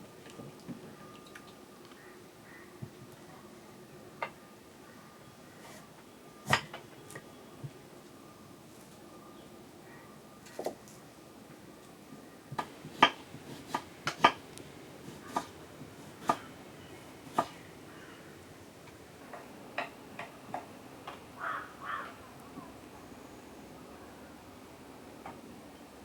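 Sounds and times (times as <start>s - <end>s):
kitchen utensils knocking: 12.6s - 14.4s.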